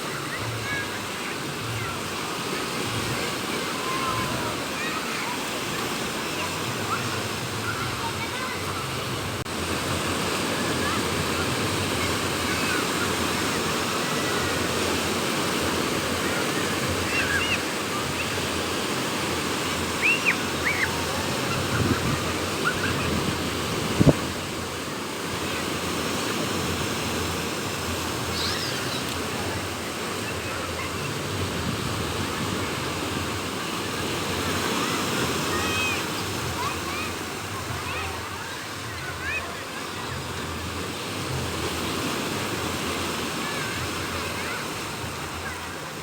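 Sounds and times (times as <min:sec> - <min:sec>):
sea waves breaking: 0:00.0 - 0:46.0
short high chirping calls: 0:20.0 - 0:20.9
strong wind: 0:20.4 - 0:34.9.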